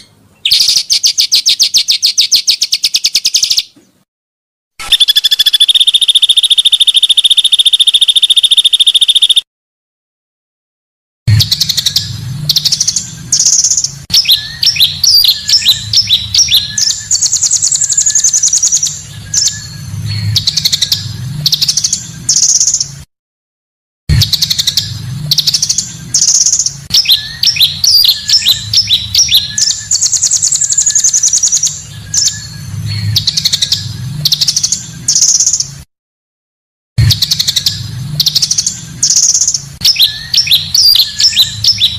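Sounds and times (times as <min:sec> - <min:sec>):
bird chirps and trills: 0:00.0 - 0:03.8, 0:04.8 - 0:09.5, 0:11.3 - 0:23.0, 0:24.1 - 0:35.8, 0:37.0 - 0:41.9
long whistled bird phrase: 0:04.8 - 0:09.4
low hum: 0:11.3 - 0:22.3, 0:24.1 - 0:30.1.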